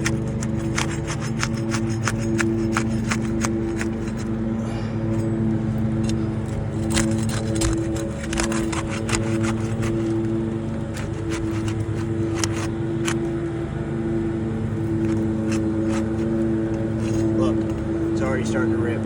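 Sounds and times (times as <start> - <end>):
sharp clicks and crackles: 0.0 - 4.3, 6.0 - 13.4
motor humming: 0.0 - 19.0.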